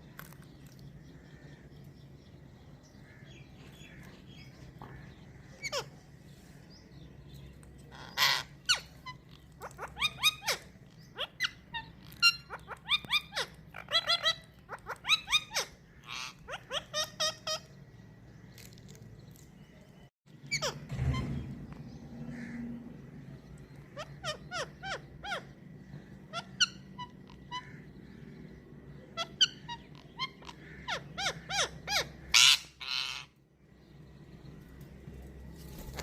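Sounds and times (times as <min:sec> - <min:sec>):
faint steady hum: 0:00.0 - 0:36.0
parrot calling: 0:04.8 - 0:06.1, 0:07.9 - 0:17.8, 0:23.6 - 0:28.1, 0:28.9 - 0:33.4.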